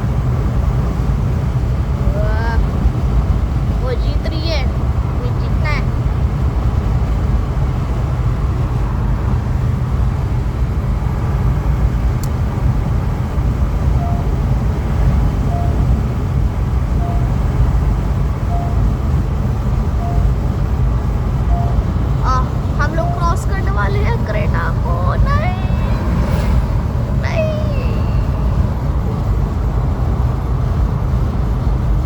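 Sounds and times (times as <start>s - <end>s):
car road and wind noise: 0.0s - 32.0s
short warning beeps: 15.5s - 15.9s, 18.5s - 18.9s, 21.5s - 23.5s.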